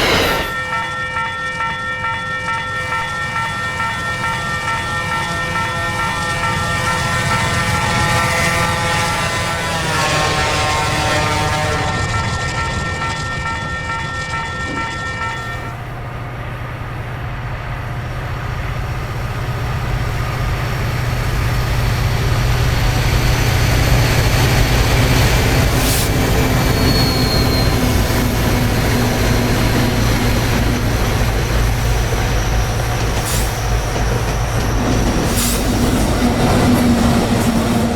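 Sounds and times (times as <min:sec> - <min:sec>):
brief high squeal: 0:00.0 - 0:00.8, 0:25.8 - 0:28.4
train rolling rumble: 0:00.0 - 0:37.9.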